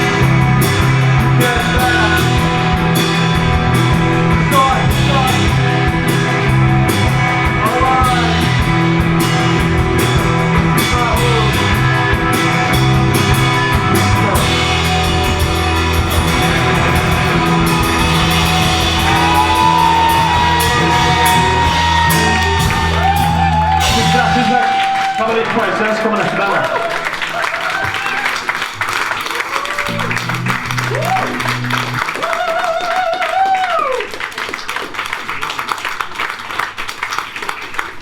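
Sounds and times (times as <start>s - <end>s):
guitar note bending: 0.0s - 25.2s
drum hits: 0.0s - 26.0s
rock band playing live: 0.0s - 32.4s.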